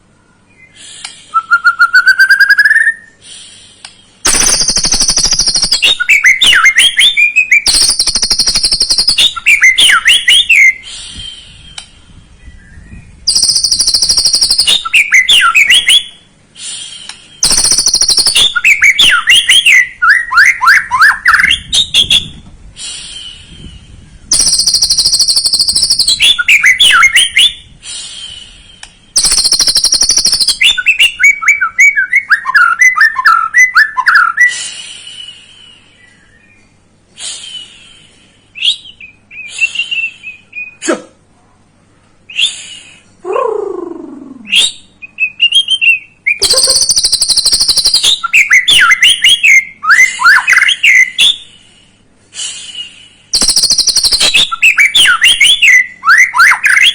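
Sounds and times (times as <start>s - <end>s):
songbird whistled notes: 0.2s - 40.8s, 44.4s - 51.6s, 52.5s - 56.9s
songbird harsh rattling buzz: 3.2s - 6.0s, 7.7s - 9.4s, 13.3s - 14.8s, 16.7s - 18.5s, 24.3s - 26.3s, 29.1s - 30.6s.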